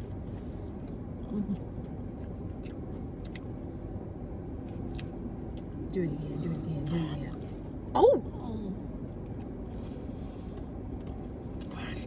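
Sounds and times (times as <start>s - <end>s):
steady low rumble: 0.0s - 12.0s
faint chewing clicks: 1.8s - 3.6s.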